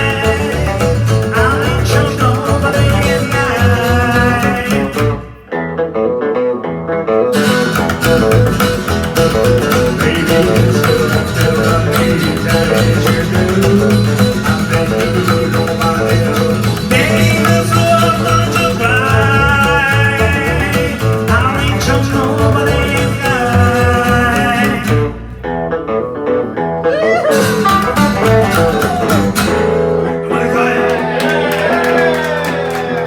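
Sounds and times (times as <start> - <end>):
live band with guitar: 0.0 - 33.0.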